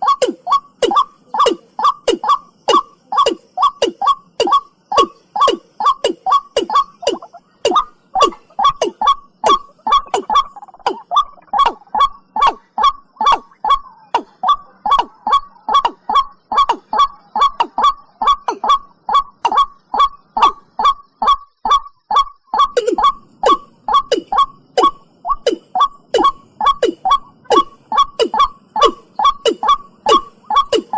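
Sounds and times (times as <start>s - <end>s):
bird calling in short notes: 0.0s - 15.9s.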